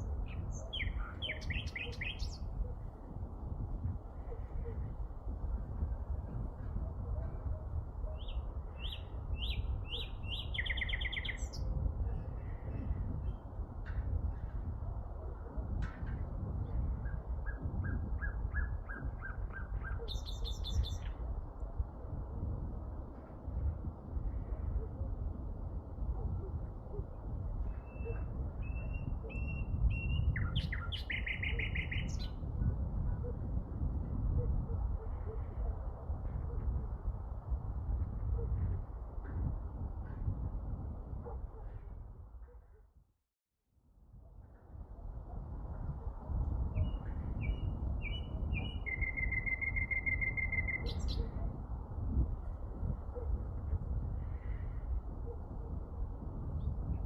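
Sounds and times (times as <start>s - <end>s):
songbird singing: 0.0s - 3.0s, 8.0s - 11.9s, 16.7s - 21.2s, 27.7s - 32.5s, 46.6s - 51.5s.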